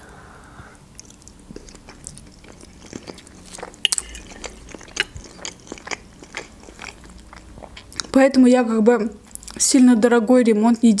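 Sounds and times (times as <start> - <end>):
person chewing dumpling: 0.8 - 8.2.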